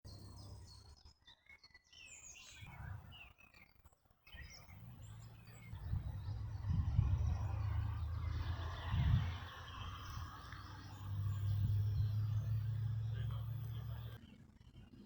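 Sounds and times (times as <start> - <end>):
birds chirping and singing: 0.1 - 14.4
low background rumble: 5.0 - 14.2.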